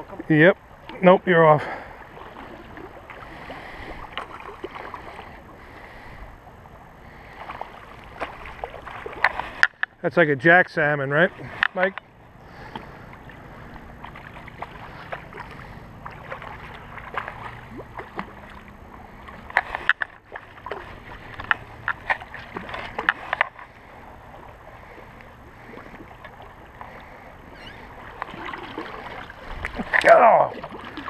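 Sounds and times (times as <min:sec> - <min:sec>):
stream running: 0:00.0 - 0:31.0.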